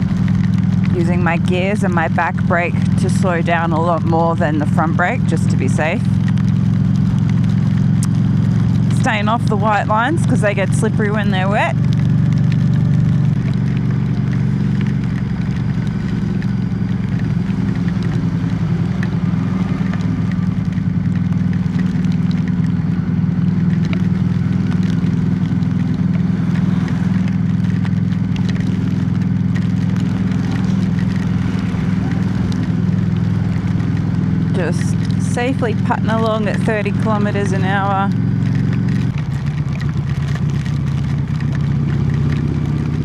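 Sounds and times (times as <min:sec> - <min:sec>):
motorcycle engine droning: 0:00.0 - 0:43.0.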